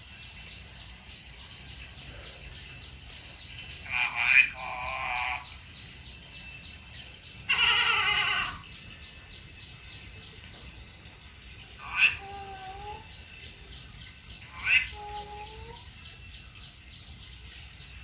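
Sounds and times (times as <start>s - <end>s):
parrot squawking: 3.8s - 5.4s, 7.5s - 8.6s, 11.8s - 13.0s, 14.5s - 15.8s.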